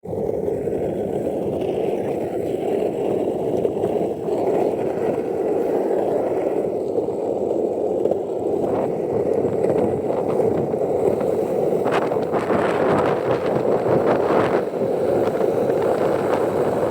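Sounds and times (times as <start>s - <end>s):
skateboard wheels rolling on asphalt: 0.0s - 16.9s
skateboard wheel clicks: 0.1s - 16.9s.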